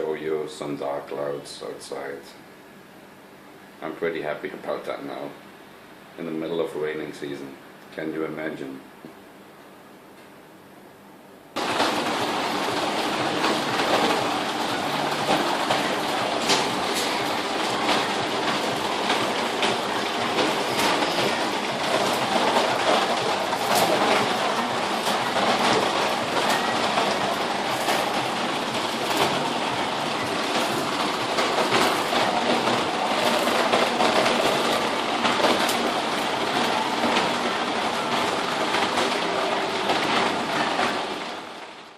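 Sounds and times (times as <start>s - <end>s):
heavy rain pouring: 11.6s - 41.9s.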